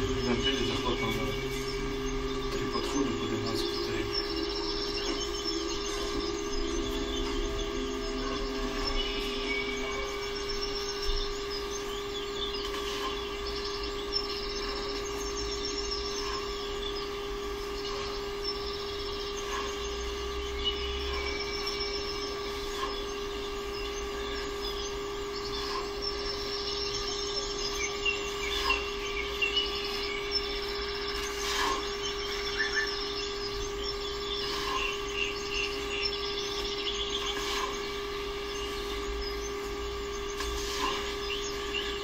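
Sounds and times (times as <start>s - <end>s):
small birds twittering: 0.0s - 42.0s
steady hum: 0.0s - 42.0s.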